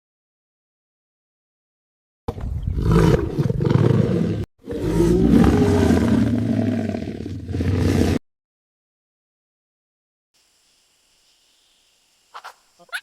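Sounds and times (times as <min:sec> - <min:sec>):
large animal roaring: 0:02.7 - 0:08.2.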